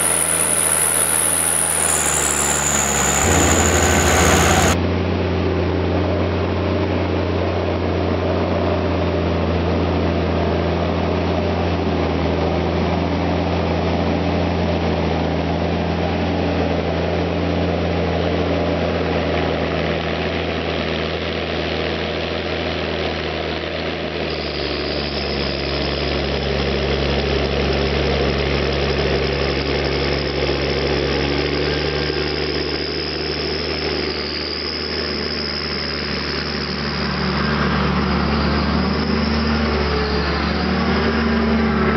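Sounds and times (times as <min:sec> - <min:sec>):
high steady whine: 0:00.0 - 0:04.8
diesel engine running: 0:00.0 - 0:05.1.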